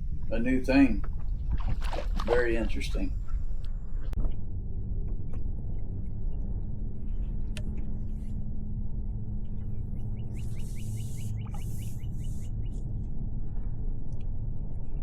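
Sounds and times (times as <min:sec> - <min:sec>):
wind buffeting microphone: 0:00.0 - 0:04.1.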